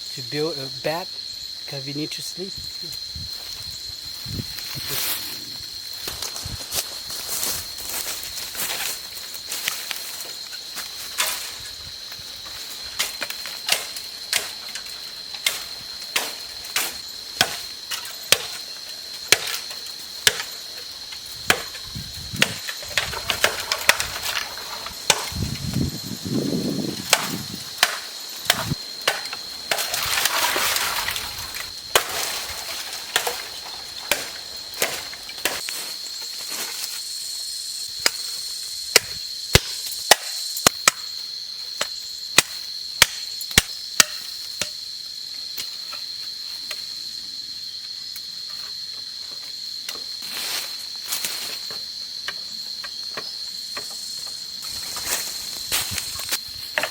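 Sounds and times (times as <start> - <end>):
wood being chopped: 13.0 - 18.6, 19.3 - 20.6, 21.4 - 25.8, 26.7 - 35.7, 38.9 - 41.1, 42.4 - 44.8
rustling: 28.4 - 36.9.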